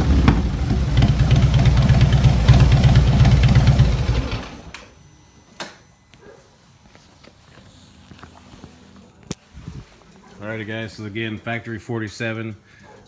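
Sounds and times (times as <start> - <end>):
motorcycle engine idling: 0.0 - 4.7.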